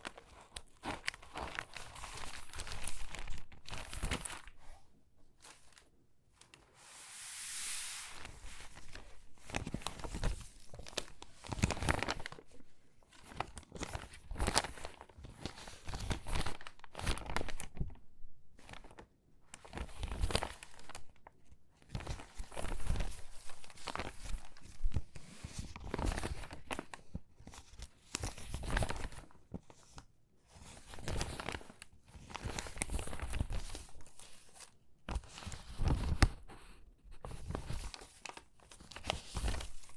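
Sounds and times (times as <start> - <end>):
stiff paper pages crinkling: 0.0 - 6.7, 7.6 - 17.9, 18.6 - 21.1, 21.8 - 39.9.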